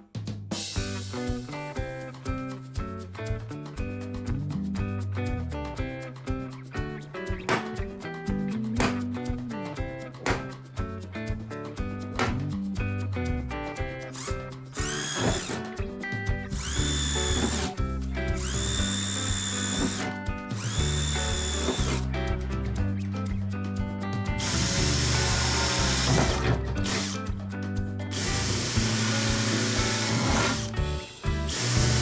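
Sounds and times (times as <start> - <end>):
background music: 0.0 - 32.0
power drill whining: 14.1 - 15.7, 16.5 - 22.1, 24.4 - 27.2, 28.1 - 32.0.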